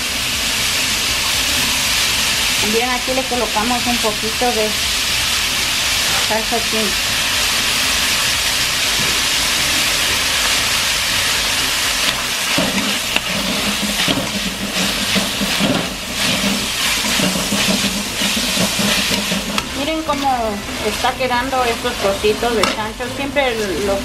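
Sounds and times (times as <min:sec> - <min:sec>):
meat sizzling in a wok: 0:00.0 - 0:24.0
metal skimmer scraping a wok: 0:12.0 - 0:24.0.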